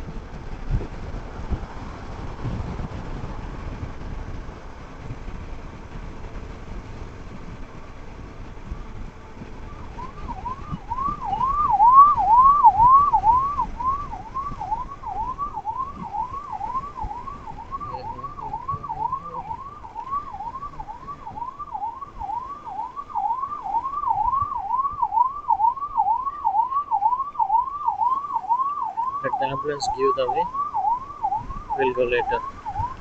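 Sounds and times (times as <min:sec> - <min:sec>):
ambulance siren wailing: 0:07.3 - 0:33.0.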